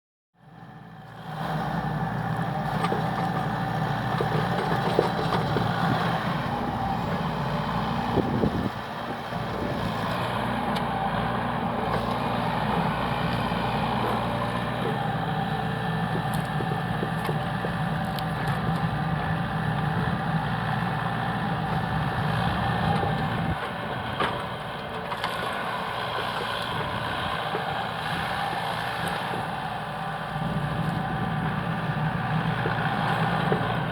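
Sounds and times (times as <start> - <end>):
heavy engine running: 0.4 - 33.9.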